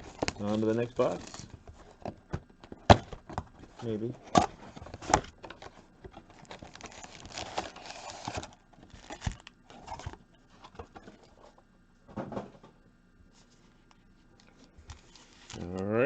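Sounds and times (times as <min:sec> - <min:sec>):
plastic wrap crinkling and tearing: 0:00.0 - 0:01.6, 0:06.3 - 0:10.1.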